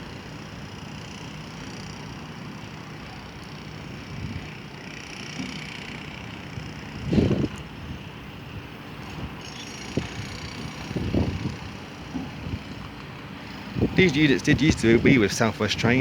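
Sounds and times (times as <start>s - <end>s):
wind buffeting microphone: 4.0s - 4.6s, 6.4s - 16.0s.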